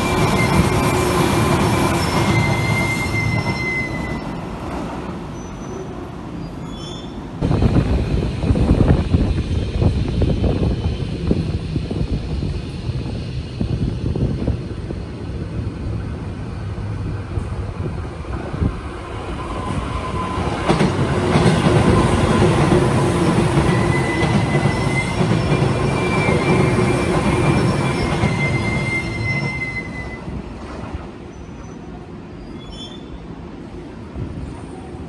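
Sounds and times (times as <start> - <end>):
high squeal: 0.0 - 4.6, 5.3 - 7.3, 19.2 - 20.7, 23.2 - 30.4
train wheels rumbling on rails: 0.0 - 35.0.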